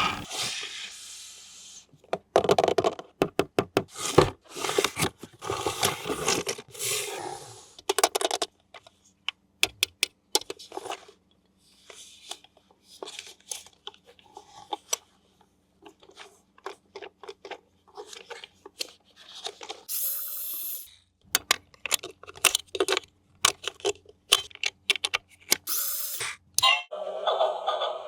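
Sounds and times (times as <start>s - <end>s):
small clicks and knocks: 21.2s - 25.7s.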